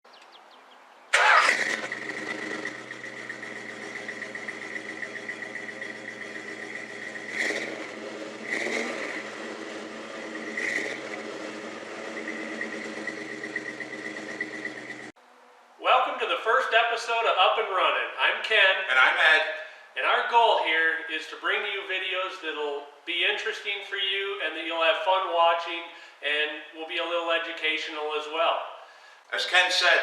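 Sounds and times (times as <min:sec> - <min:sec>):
engine revving blips: 0:01.1 - 0:15.1
car engine starting and idling: 0:01.1 - 0:15.2.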